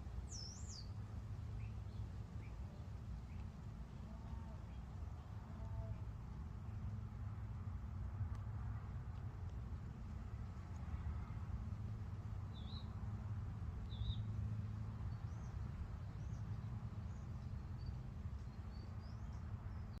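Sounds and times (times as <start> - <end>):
small birds chirping: 0.0 - 6.9, 12.3 - 13.0, 13.8 - 20.0
steady low rumble: 0.0 - 20.0.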